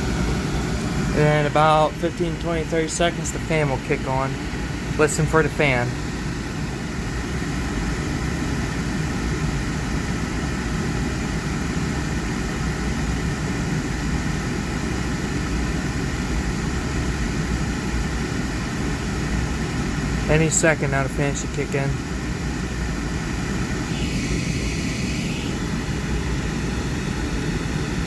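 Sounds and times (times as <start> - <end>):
furnace burner running: 0.0 - 28.0.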